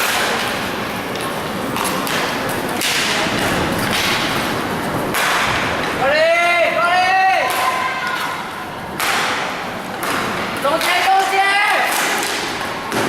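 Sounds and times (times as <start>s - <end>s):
sticks and puck thudding: 0.0s - 6.6s, 7.4s - 13.0s
skate wheels rolling: 0.0s - 13.0s.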